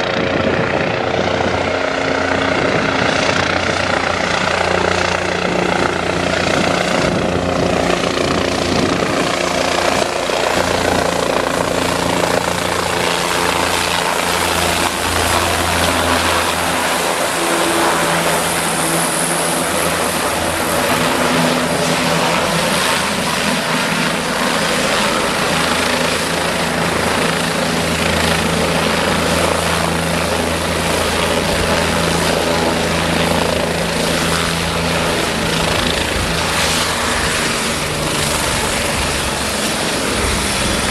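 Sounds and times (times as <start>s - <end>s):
helicopter running: 0.0s - 40.9s.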